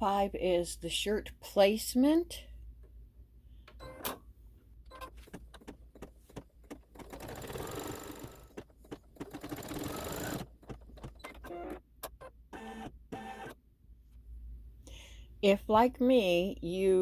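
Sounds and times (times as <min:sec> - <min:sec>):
embroidery machine stitching: 0:04.9 - 0:13.6.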